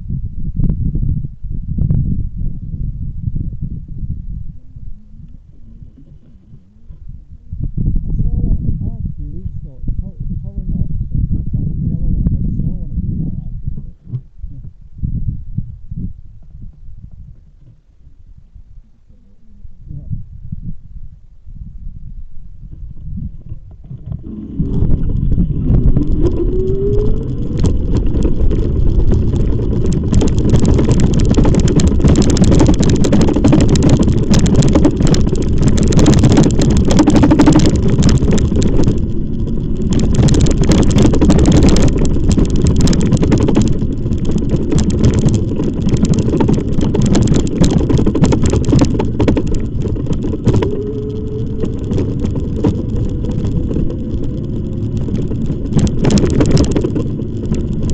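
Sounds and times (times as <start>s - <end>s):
bike tyres rumbling: 0.0s - 17.9s, 22.4s - 57.9s.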